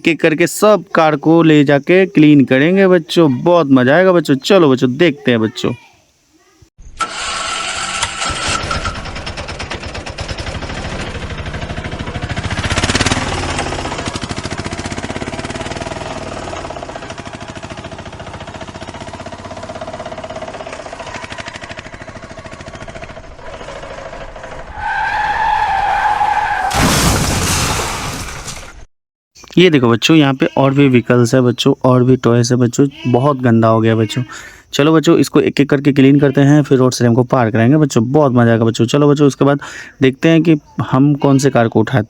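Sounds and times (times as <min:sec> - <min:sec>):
engine running with pulsing rattle: 0:07.0 - 0:24.7.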